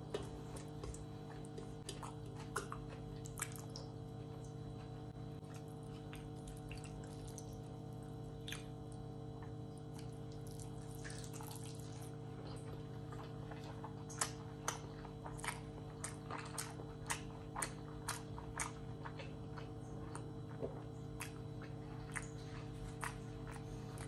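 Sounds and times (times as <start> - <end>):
chewing with mouth closed: 0.0 - 24.0
steady low hum: 0.0 - 24.0.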